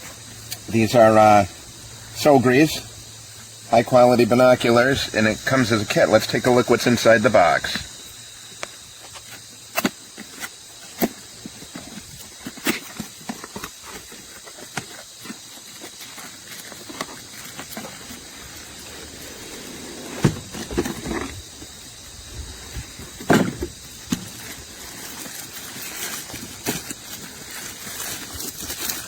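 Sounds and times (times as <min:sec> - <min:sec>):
steady hiss: 0:00.0 - 0:29.0
cardboard box packaging rustling: 0:11.1 - 0:29.0
bumps on box: 0:20.0 - 0:21.6, 0:22.8 - 0:24.4.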